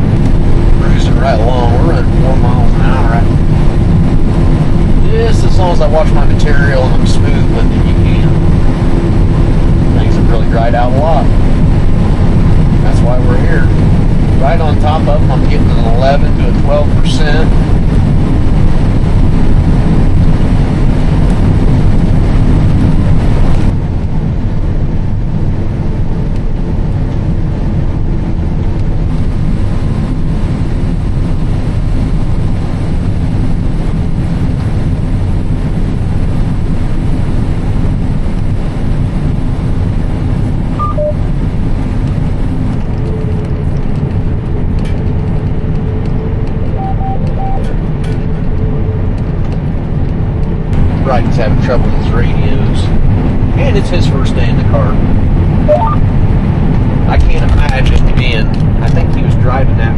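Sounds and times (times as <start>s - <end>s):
combine harvester engine drone: 0.0s - 59.9s
short electronic beeps: 40.8s - 41.2s, 46.6s - 47.7s, 55.7s - 56.0s.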